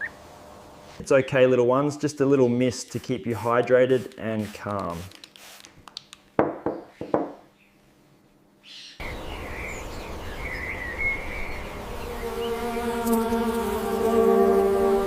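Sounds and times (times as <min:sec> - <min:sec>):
spray bottle squirts: 0:02.9 - 0:06.1
small birds chirping: 0:08.6 - 0:13.1
steady buzzing hum: 0:11.2 - 0:15.0.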